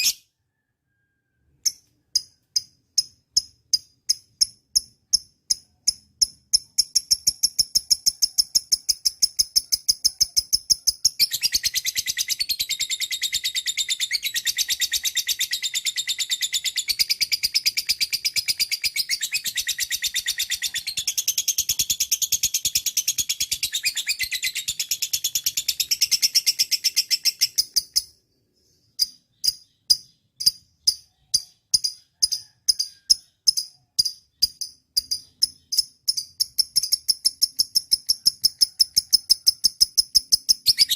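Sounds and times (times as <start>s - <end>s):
lovebird chirps: 0.0s - 40.9s
lovebird chattering trill: 29.0s - 40.9s.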